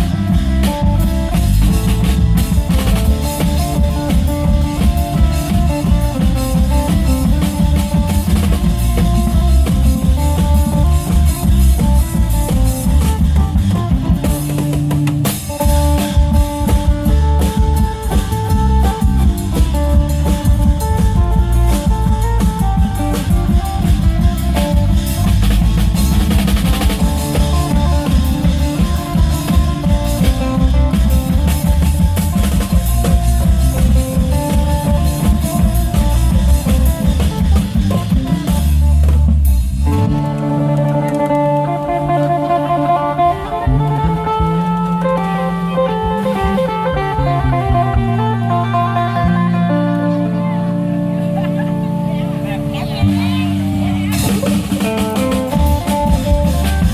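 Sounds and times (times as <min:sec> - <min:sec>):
long-drum band playing lively beat: 0:00.0 - 0:56.9
amplified plucked lute melody: 0:39.8 - 0:56.9.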